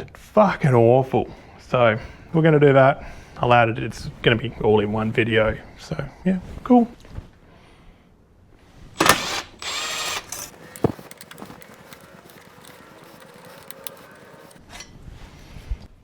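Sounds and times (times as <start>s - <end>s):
power tool whir: 9.0s - 14.6s
metal tools clattering: 10.2s - 14.6s.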